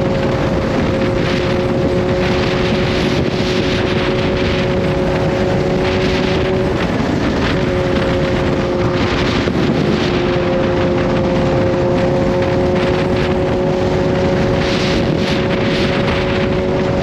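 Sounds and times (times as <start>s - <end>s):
motorcycle engine cruising: 0.0s - 17.0s
wind noise on microphone: 0.0s - 17.0s.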